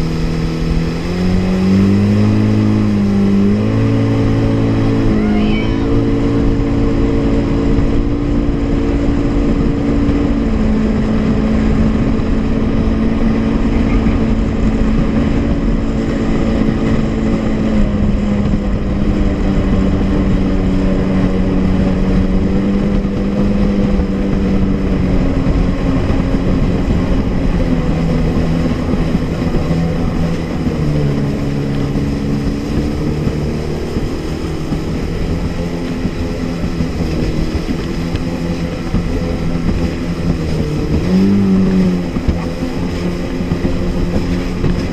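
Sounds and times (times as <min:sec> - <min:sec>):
constant rushing noise: 0:00.0 - 0:44.9
jet ski engine running: 0:00.0 - 0:44.9.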